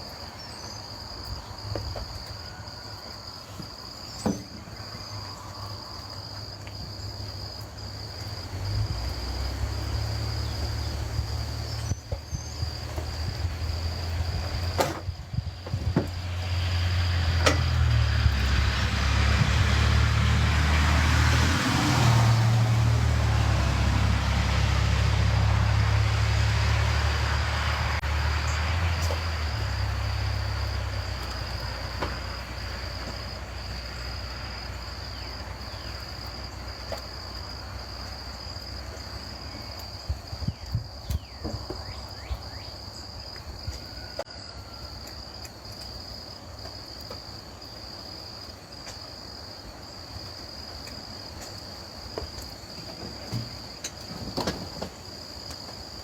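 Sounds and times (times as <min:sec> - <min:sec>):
vehicle engine rumble: 0:00.0 - 0:44.4
crickets trilling: 0:00.0 - 0:56.0.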